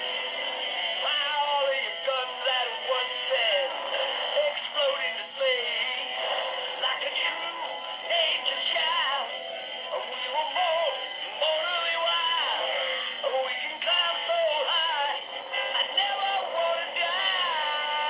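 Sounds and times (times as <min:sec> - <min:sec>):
tinny christmas song from toy speaker: 0:00.0 - 0:18.0.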